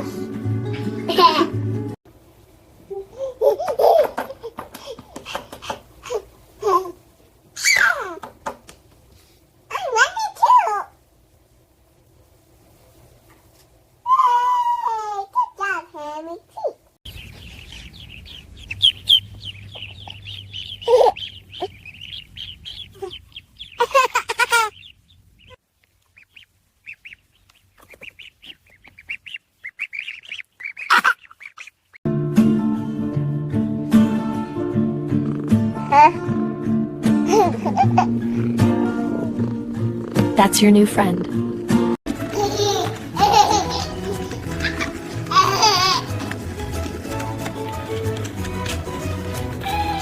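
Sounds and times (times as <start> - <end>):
young child laughing: 1.0 - 1.6, 2.9 - 7.0, 7.6 - 8.6, 9.7 - 10.9, 20.8 - 21.8, 22.9 - 23.2, 23.8 - 24.8, 30.9 - 31.2, 37.2 - 38.2, 42.3 - 46.1
loud chicken calls: 17.1 - 25.6, 26.2 - 31.9
chickens chirping: 17.1 - 32.0, 42.1 - 50.0.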